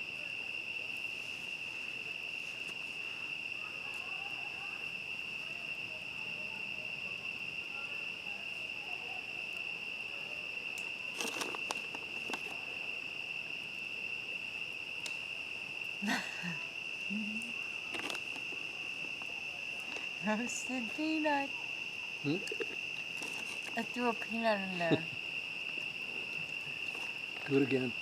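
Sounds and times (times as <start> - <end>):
crickets trilling: 0.0 - 28.0
campfire crackling and popping: 10.7 - 13.8, 14.9 - 16.0, 22.2 - 24.0.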